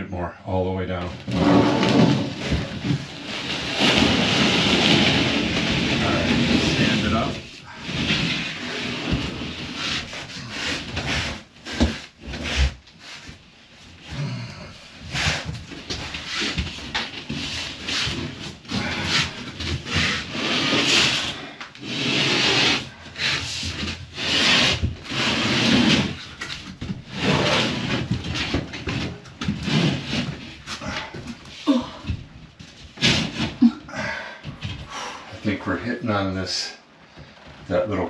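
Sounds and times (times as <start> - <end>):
drywall panel scraping against wood: 1.0 - 13.5, 15.0 - 31.6.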